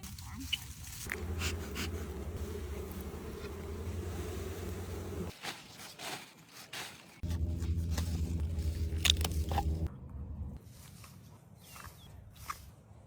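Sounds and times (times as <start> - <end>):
low buzz: 1.1 - 5.3, 7.2 - 10.6.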